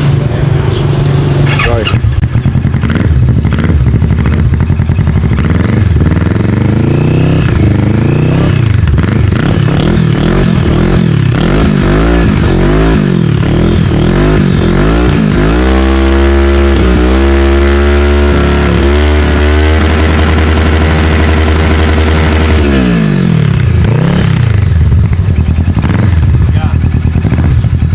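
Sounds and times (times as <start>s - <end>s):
motorcycle engine idling: 0.0s - 15.5s, 23.0s - 27.9s
motorcycle engine revving: 0.0s - 27.9s.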